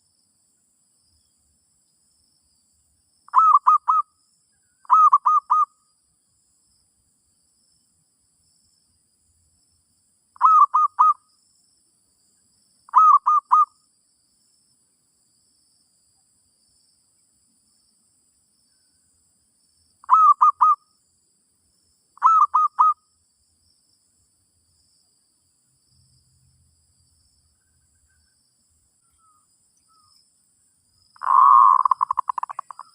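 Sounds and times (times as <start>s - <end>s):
dove cooing: 3.3s - 4.0s, 4.9s - 5.7s, 10.4s - 11.2s, 12.9s - 13.7s, 20.0s - 20.8s, 22.2s - 23.0s, 31.2s - 32.9s.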